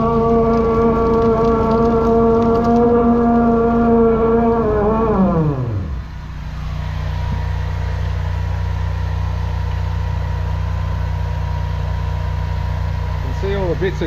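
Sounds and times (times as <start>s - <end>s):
engine winding down to idle: 0.0s - 14.0s.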